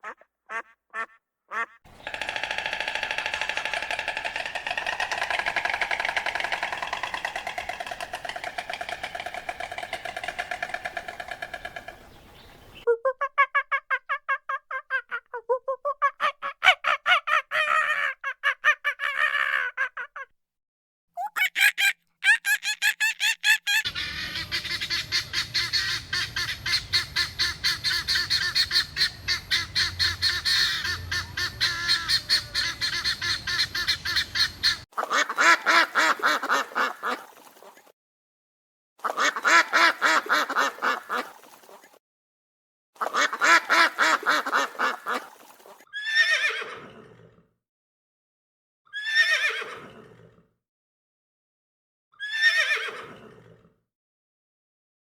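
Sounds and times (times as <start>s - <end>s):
fowl calling: 0.0s - 12.9s, 21.3s - 37.1s.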